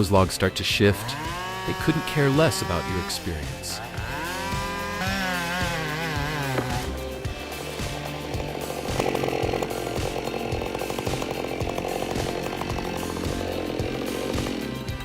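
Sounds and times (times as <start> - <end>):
background music with steady beat: 0.0 - 15.0
chainsaw cutting wood: 0.7 - 15.0.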